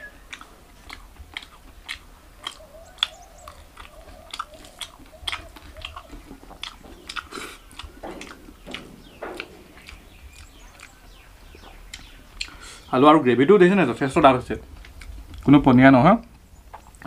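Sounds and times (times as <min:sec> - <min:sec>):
person chewing food: 0:00.0 - 0:12.9, 0:14.7 - 0:15.5
wet mouth clicks and smacks: 0:00.3 - 0:11.2, 0:11.8 - 0:12.6.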